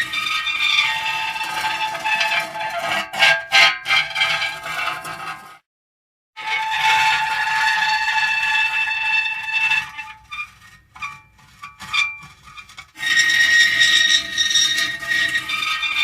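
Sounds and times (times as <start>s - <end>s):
metal squealing creak: 0.0s - 5.5s, 6.4s - 16.0s.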